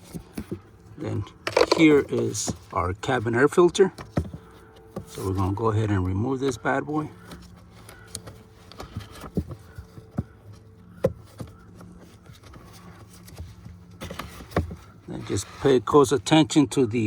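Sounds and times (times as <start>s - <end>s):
light rustling and scraping: 0.0s - 16.5s
plastic clicks and knocks: 1.3s - 2.6s.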